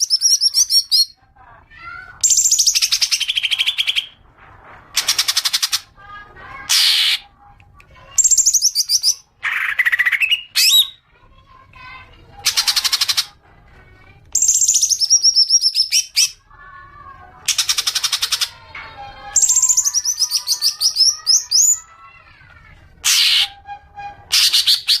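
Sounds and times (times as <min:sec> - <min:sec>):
bird rattling chatters: 0:04.9 - 0:05.9.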